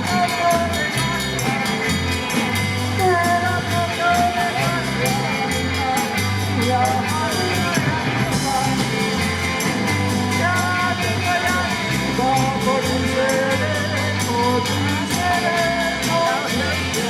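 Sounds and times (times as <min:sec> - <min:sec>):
bass notes: 0:00.0 - 0:17.0
drum beat: 0:00.0 - 0:17.0
rock band playing: 0:00.0 - 0:17.0.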